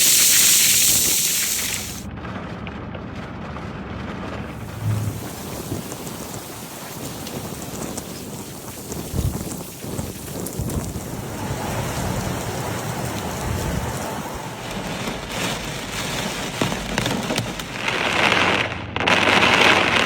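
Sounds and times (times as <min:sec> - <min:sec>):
heavy rain pouring: 0:00.0 - 0:02.1, 0:04.1 - 0:20.0
low rumbling: 0:02.0 - 0:06.7, 0:10.6 - 0:18.0.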